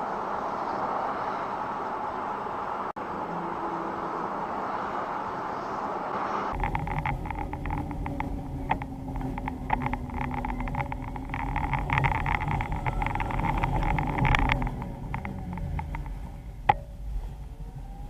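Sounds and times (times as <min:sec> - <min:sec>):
vehicle engine droning: 0:00.0 - 0:18.0
rattles and clicks: 0:06.5 - 0:17.6.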